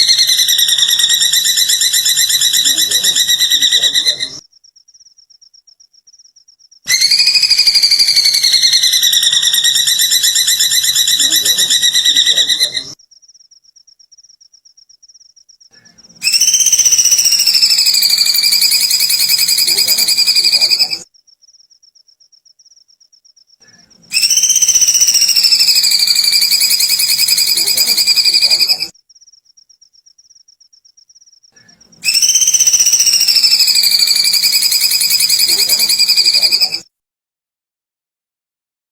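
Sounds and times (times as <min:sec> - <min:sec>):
bird trilling: 0:00.0 - 0:04.4, 0:06.9 - 0:13.0, 0:15.7 - 0:21.1, 0:23.6 - 0:28.9, 0:31.6 - 0:36.8.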